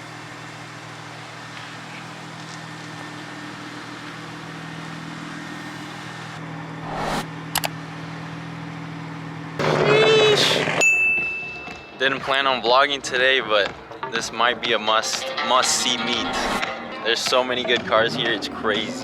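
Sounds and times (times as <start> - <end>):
short rush of noise: 6.8 - 7.3.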